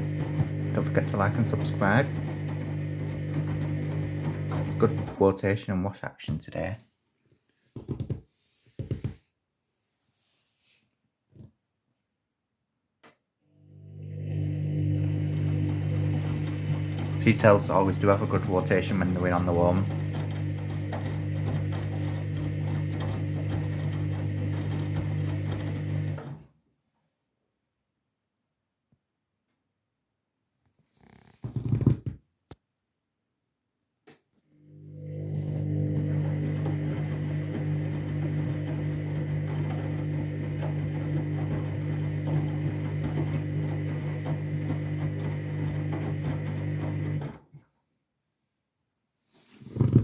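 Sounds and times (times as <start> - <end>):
washing machine motor humming: 0.0 - 5.4, 13.7 - 26.4, 34.6 - 47.4.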